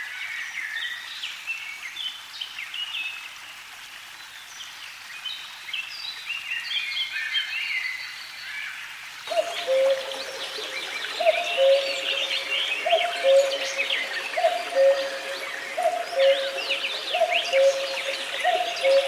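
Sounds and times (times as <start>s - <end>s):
small birds chirping: 9.3s - 19.0s.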